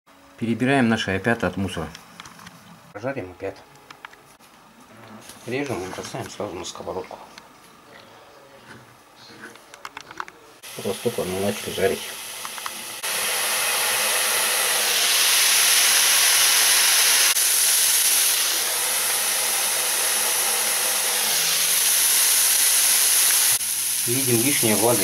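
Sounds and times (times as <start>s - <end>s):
mushrooms sizzling in a pan: 10.6s - 25.0s.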